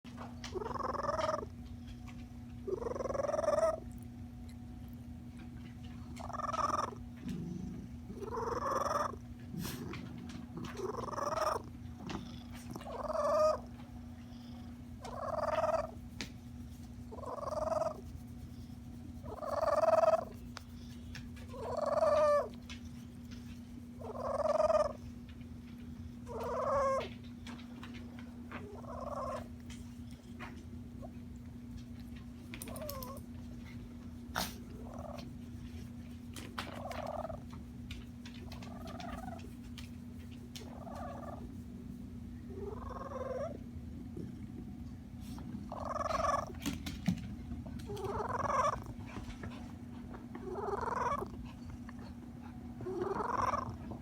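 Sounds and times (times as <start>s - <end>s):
cat trilling purr: 0.5s - 1.6s, 2.6s - 4.0s, 6.0s - 22.8s, 23.4s - 25.1s, 26.2s - 37.6s, 38.2s - 39.6s, 40.6s - 41.6s, 42.5s - 44.5s, 45.5s - 46.7s, 47.8s - 49.2s, 50.3s - 54.0s.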